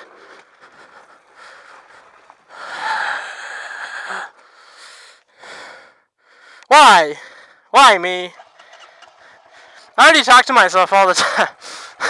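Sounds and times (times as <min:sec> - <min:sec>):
person breathing hard: 0:00.0 - 0:07.7, 0:11.6 - 0:12.0.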